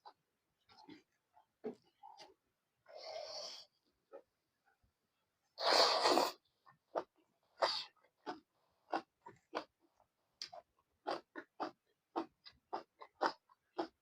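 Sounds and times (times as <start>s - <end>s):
wet chewing clicks: 10.4s - 14.0s.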